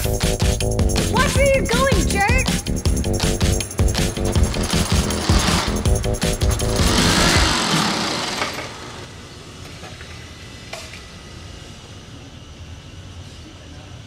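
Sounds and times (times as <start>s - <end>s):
music with a beat: 0.0s - 7.5s
street traffic hum: 0.7s - 9.3s
loud rushing noise: 2.6s - 9.1s.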